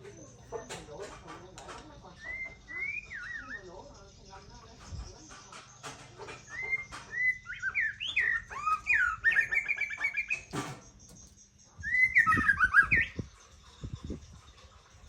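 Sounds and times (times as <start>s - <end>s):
bird singing whistled phrases: 2.2s - 3.7s, 6.5s - 10.5s, 11.8s - 13.3s.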